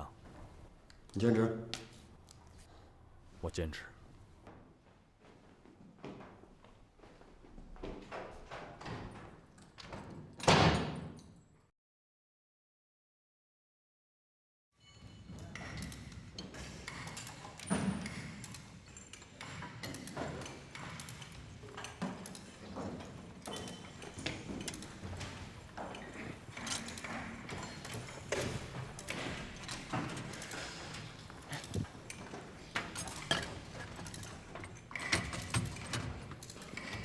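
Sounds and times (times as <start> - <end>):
knocks clicks and clatter: 15.1 - 37.0.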